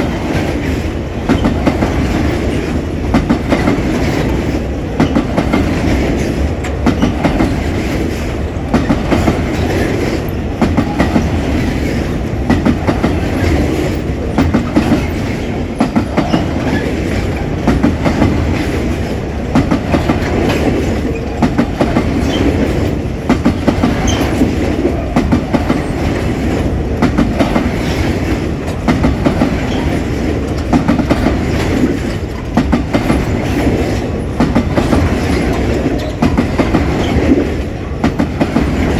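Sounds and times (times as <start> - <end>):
freight train rolling past: 0.0 - 38.9
wheels clacking over rail joint: 0.0 - 38.9.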